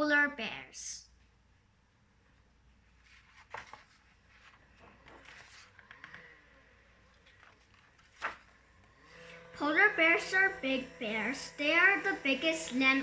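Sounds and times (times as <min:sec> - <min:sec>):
faint clicks and rustles: 0:02.9 - 0:09.4.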